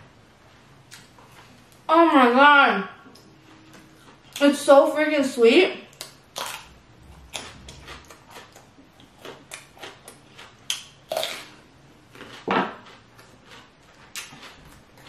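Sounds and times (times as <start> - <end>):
person crunching raw vegetable: 5.9 - 15.0.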